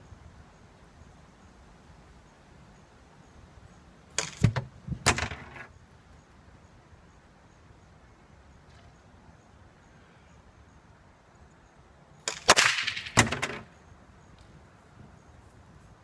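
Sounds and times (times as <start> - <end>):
target popping with a crack: 12.2 - 13.7.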